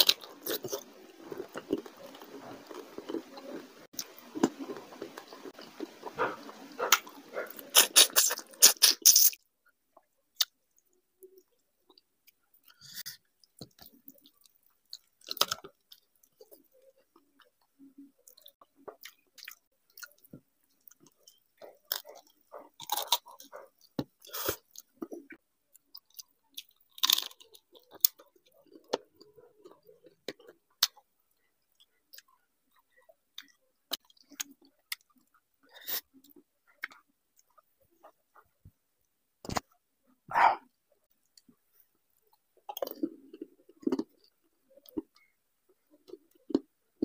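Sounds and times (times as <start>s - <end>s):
man chewing wet mouth clicks: 4.0s - 9.4s.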